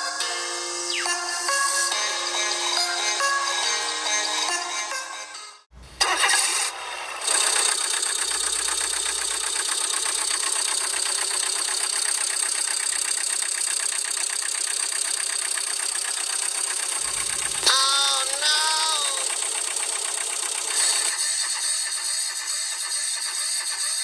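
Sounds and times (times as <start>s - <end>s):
tractor engine knocking idle: 7.2s - 24.0s.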